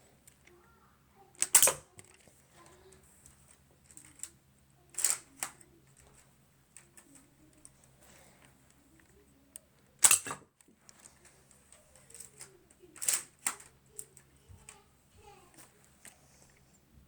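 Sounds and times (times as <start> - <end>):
rubber-band rifle snapping: 1.4 - 2.2, 10.0 - 10.4, 12.2 - 13.7
plastic handling clicks: 1.4 - 14.8
small clicks: 1.4 - 16.8.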